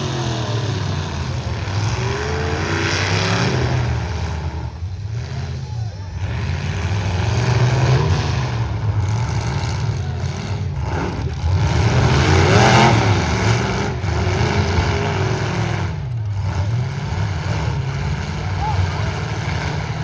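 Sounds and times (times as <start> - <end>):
truck engines revving: 0.0 - 20.0.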